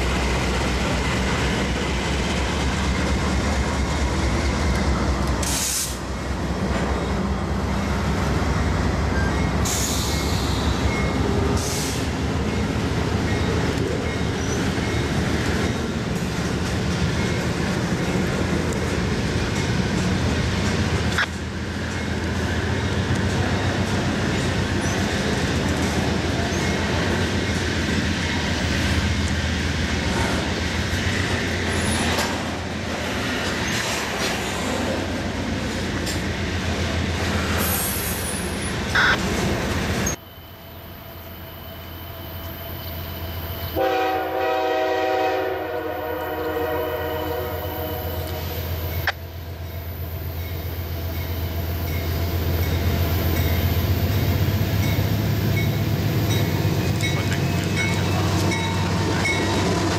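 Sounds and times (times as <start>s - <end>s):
diesel locomotive rumble: 0.0s - 41.4s, 42.4s - 59.9s
train wheels on rails: 0.0s - 59.9s
locomotive air horn: 43.8s - 48.6s.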